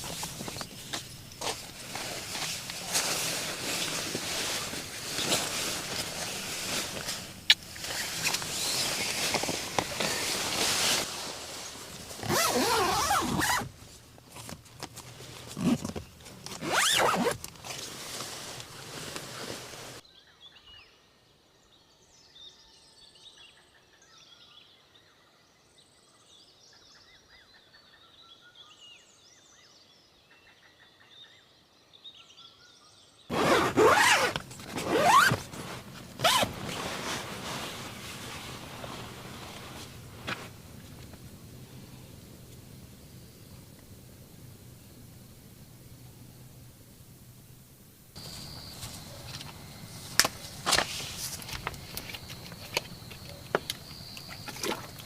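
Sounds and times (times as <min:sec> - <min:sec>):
zipper rasping: 0:12.2 - 0:13.7, 0:15.4 - 0:17.9, 0:33.3 - 0:40.5.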